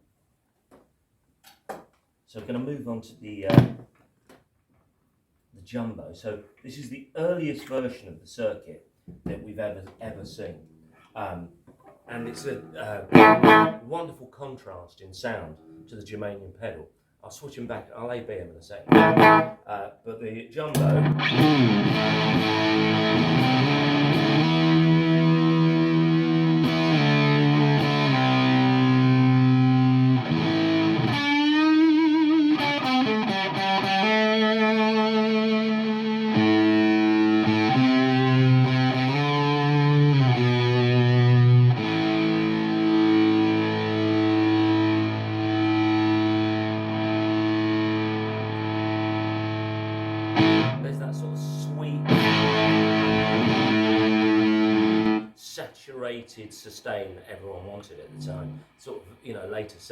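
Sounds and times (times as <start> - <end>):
fuzz electric guitar: 13.1 - 13.8, 18.9 - 19.6, 20.8 - 55.3.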